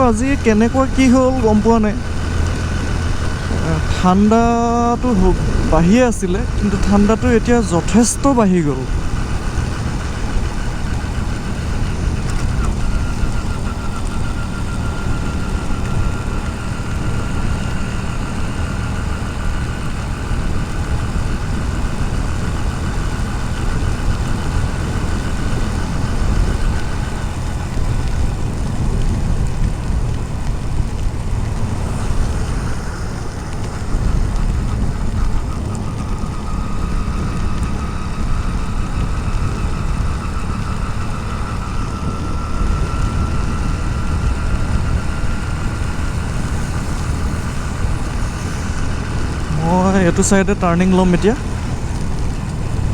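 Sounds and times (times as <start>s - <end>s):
wind rushing: 0.0s - 12.9s
motorcycle engine running: 0.0s - 52.9s
rain on helmet: 0.0s - 52.9s.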